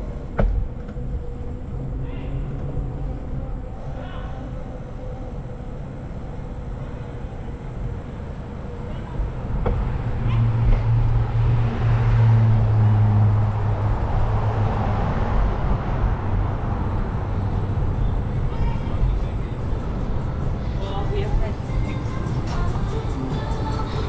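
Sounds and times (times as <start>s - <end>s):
low rumble of road noise: 0.0s - 24.0s
motor vehicle engine passing: 8.6s - 18.4s.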